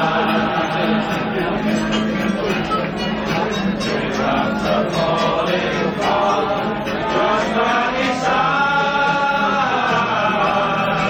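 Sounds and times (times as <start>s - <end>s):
background music: 0.0s - 11.0s
people singing in chorus: 0.0s - 11.0s.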